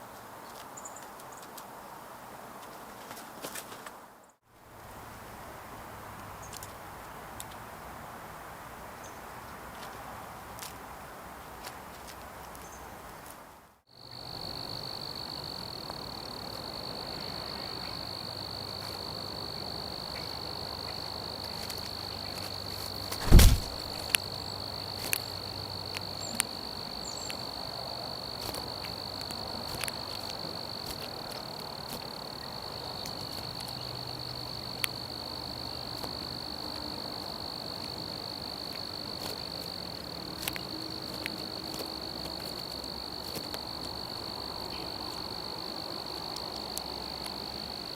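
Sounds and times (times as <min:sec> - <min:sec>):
loud thump: 0:23.2 - 0:23.9.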